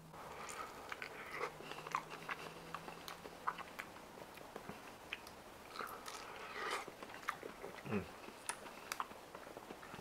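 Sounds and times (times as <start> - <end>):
mouth clicks and smacks: 4.5 - 10.0.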